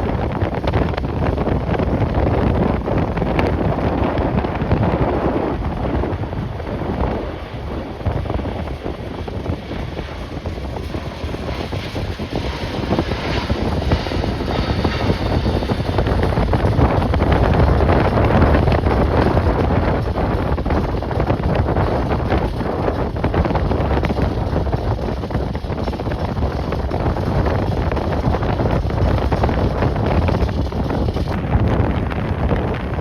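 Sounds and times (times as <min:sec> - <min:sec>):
strong wind buffeting microphone: 0:00.0 - 0:33.0.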